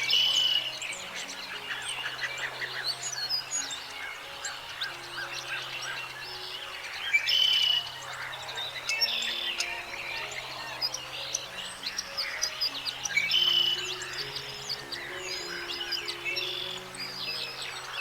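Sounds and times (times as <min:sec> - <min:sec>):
birds chirping and singing: 0:00.0 - 0:18.0
soft music tones: 0:00.0 - 0:18.0.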